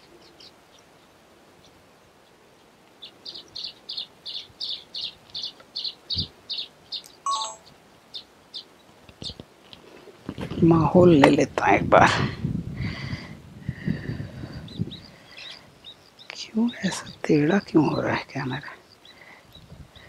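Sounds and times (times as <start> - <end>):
bird chirping: 0.0 - 9.4, 14.6 - 20.0.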